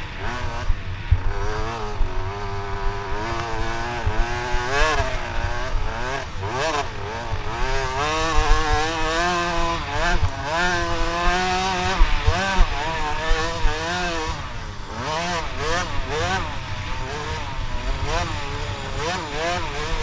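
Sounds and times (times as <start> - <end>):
dirt bike engines revving: 0.0 - 20.0.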